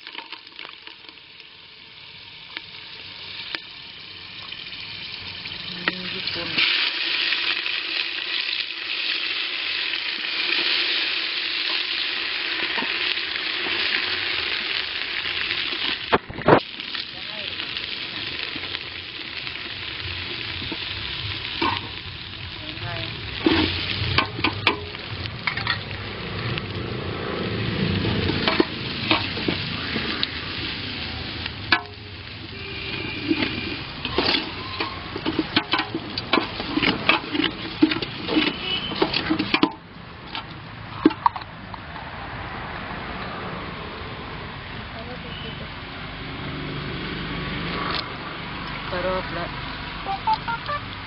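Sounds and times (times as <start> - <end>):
onions sizzling in hot oil: 0.0 - 41.5, 43.9 - 51.0
ladle scraping a pot: 32.9 - 39.8.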